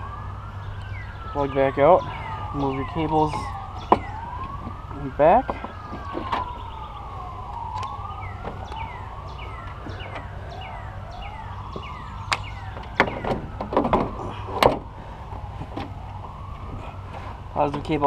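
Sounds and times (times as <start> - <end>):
siren chirping: 0.0 - 18.0
siren wailing: 0.0 - 18.0
car battery knocking and clattering: 3.8 - 4.8, 11.8 - 14.9.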